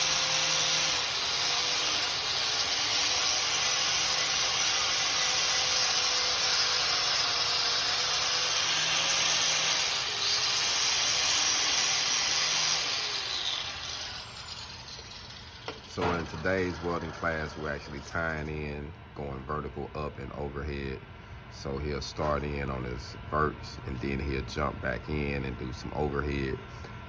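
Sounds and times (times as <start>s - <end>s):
welding arc crackling and hissing: 0.0s - 18.1s.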